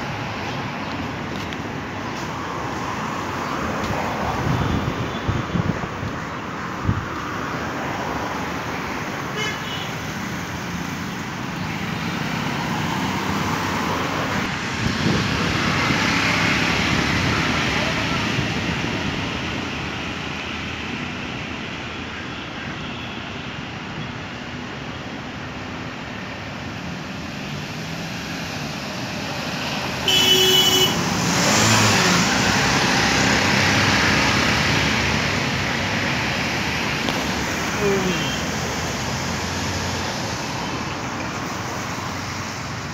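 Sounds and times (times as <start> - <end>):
road traffic noise: 0.0 - 42.9
vehicle horn: 9.4 - 10.0, 30.0 - 31.0
vehicle passing close: 30.9 - 40.6.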